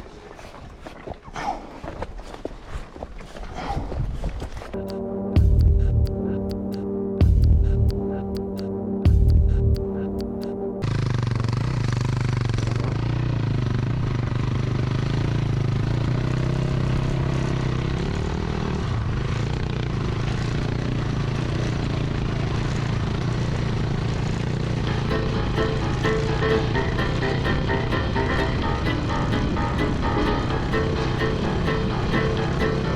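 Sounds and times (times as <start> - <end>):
music: 4.8 - 10.8, 24.8 - 32.9
dirt bike engine running: 4.8 - 32.9.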